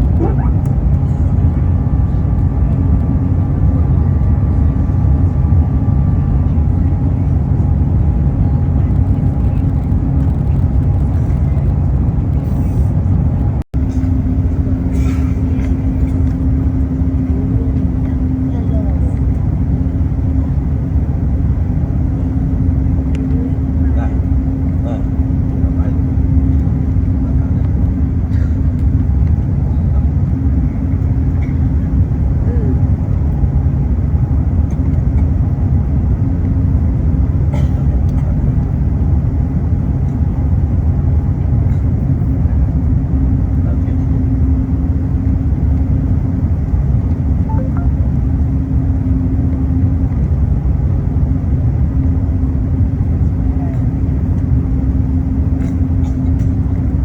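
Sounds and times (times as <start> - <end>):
constant cabin hum: 0.0 - 57.0
engines and airflow rumbling: 0.0 - 57.0
steady hum: 47.4 - 49.3.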